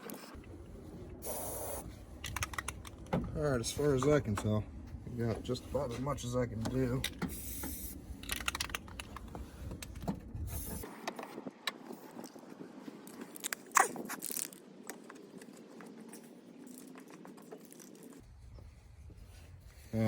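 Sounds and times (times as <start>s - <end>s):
objects being handled: 6.6s - 11.2s.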